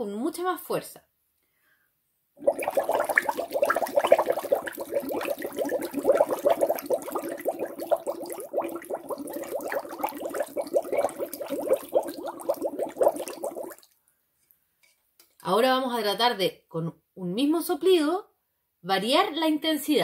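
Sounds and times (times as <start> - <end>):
rapid bubbling in water: 2.4 - 13.9.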